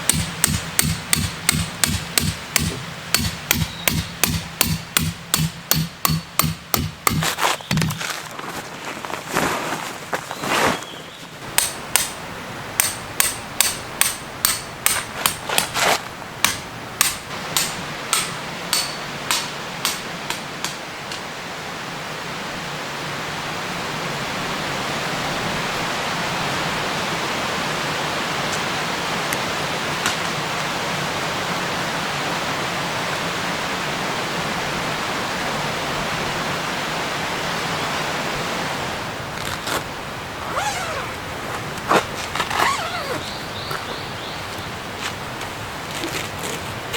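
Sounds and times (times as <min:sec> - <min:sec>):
hammer striking tent pegs: 0:00.0 - 0:08.1, 0:11.5 - 0:12.2, 0:12.8 - 0:21.2.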